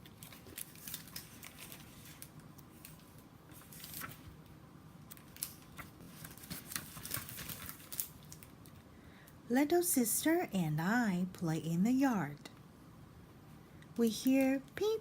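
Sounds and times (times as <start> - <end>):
paper pages turning: 0.0 - 4.4, 5.0 - 8.5.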